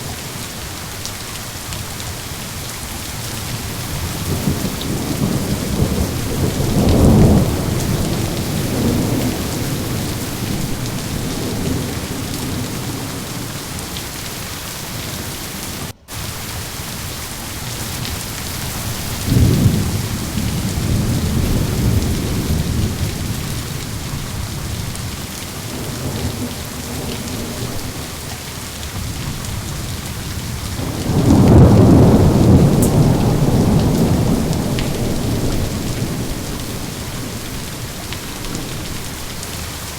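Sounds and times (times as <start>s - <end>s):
heavy rain: 0.0s - 39.9s
rolling thunder: 3.2s - 16.8s, 17.7s - 39.6s.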